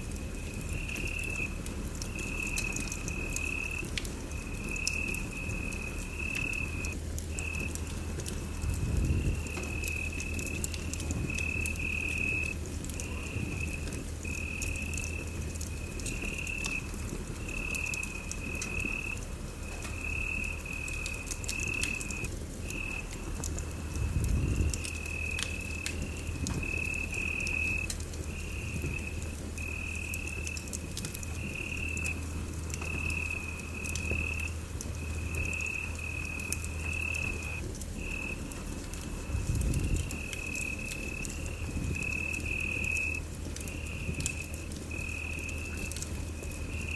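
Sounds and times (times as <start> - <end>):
wood fire crackling: 0.0 - 46.9.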